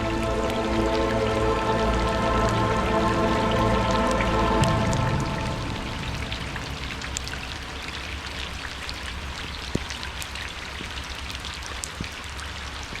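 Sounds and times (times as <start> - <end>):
heavy rain falling: 0.0 - 12.0
raindrops ticking on a surface: 0.0 - 13.0.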